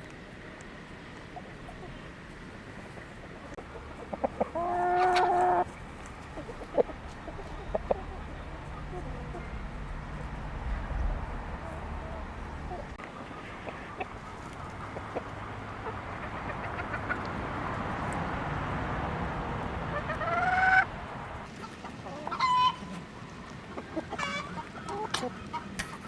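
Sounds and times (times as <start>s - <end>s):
chickens clucking: 1.1s - 18.2s, 19.6s - 26.0s
chicken squawk: 3.7s - 5.7s, 6.3s - 9.6s, 11.7s - 17.4s, 19.9s - 20.9s, 22.0s - 23.0s, 23.8s - 25.7s.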